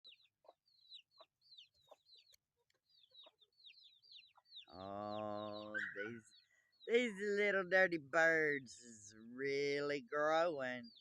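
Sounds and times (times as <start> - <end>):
chicks peeping: 0.0 - 7.6, 10.8 - 11.0.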